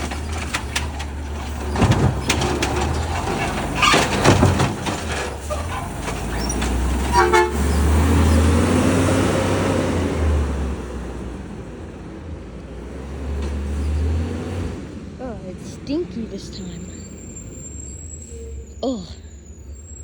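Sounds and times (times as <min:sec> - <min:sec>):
diesel engine running: 0:00.0 - 0:20.0
short horn toot: 0:07.1 - 0:07.8.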